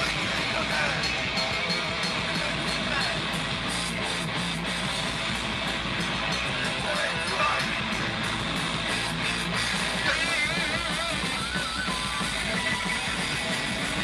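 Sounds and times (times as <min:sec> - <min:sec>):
wavering vocal or lead line: 0:00.0 - 0:03.3, 0:06.5 - 0:07.8
drums: 0:00.0 - 0:14.0
electric guitar: 0:00.0 - 0:14.0
rock music: 0:00.0 - 0:14.0.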